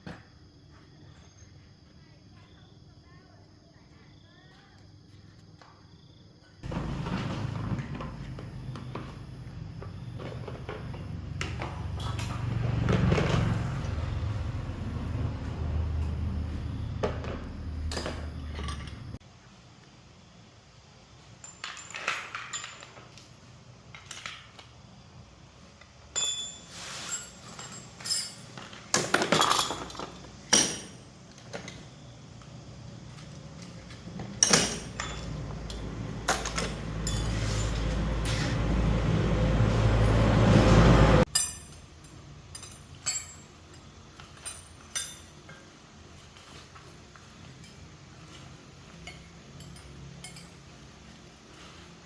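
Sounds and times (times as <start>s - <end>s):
metallic clinks and knocks: 16.0s - 19.2s, 21.4s - 24.8s, 26.1s - 31.9s, 33.1s - 38.4s, 41.3s - 46.6s, 47.2s - 51.2s.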